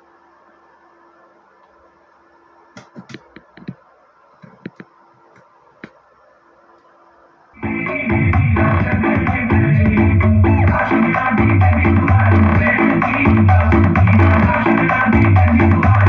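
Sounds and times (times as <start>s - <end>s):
faint steady hum and hiss: 0.0s - 16.0s
light clicks and knocks: 2.8s - 3.8s
loud music: 7.6s - 16.0s.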